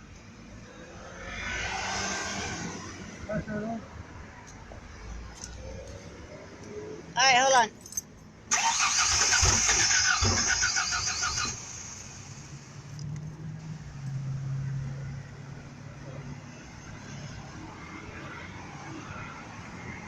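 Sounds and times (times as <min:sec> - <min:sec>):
truck starter motor cranking: 0:08.5 - 0:12.2.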